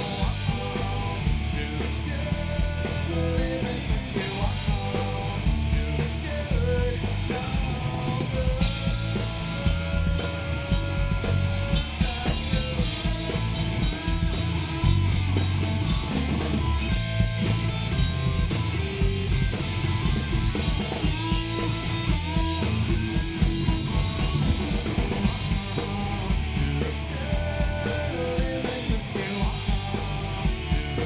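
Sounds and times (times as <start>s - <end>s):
bass guitar: 0.0s - 31.0s
drum kit beat: 0.0s - 31.0s
electric guitar lead with bends: 8.6s - 26.9s.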